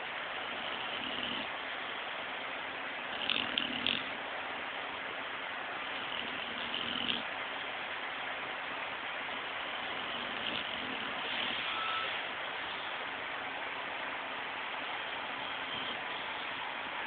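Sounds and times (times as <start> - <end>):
steady background hiss: 0.0 - 17.0
dog snoring: 0.4 - 1.6, 3.1 - 4.2, 5.9 - 7.3, 9.8 - 12.9, 15.4 - 16.4.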